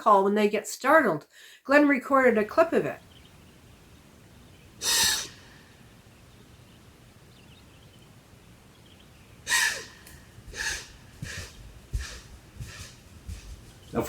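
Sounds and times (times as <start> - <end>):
deer snorting alarm call: 3.0 - 13.6.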